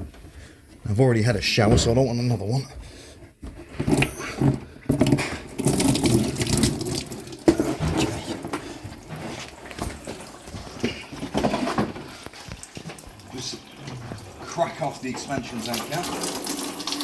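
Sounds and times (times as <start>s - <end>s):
coolant splashing and gurgling: 5.0s - 17.0s.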